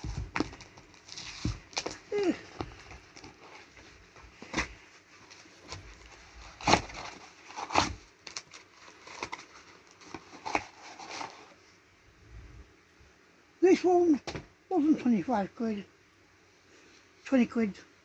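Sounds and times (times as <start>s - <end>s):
packaging knocking and crackling: 0.0s - 11.4s.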